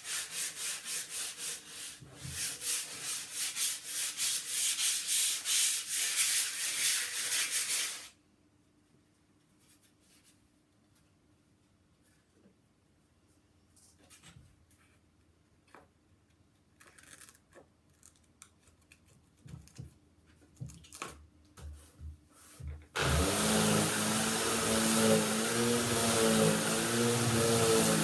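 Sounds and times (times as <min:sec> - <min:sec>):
vacuum cleaner running: 0:23.0 - 0:28.0.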